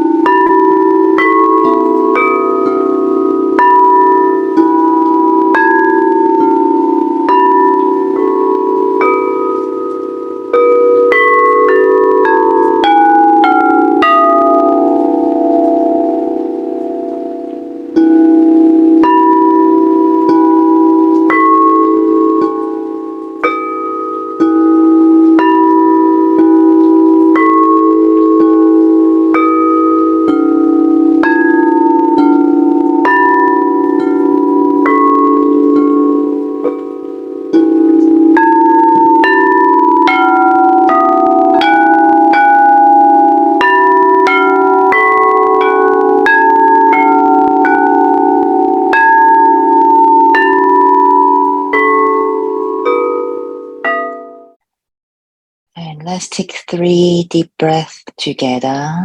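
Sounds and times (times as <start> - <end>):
low hum from bowls: 0.0 - 54.4
sound bowls struck and ringing: 0.0 - 54.6.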